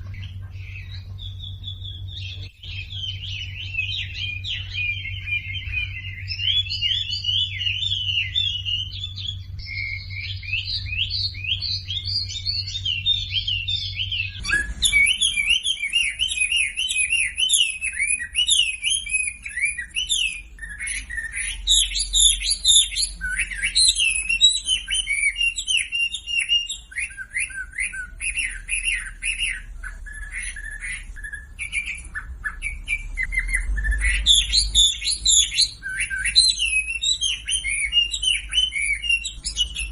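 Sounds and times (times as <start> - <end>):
low hum: 0.0 - 17.0
songbird singing: 0.0 - 39.9.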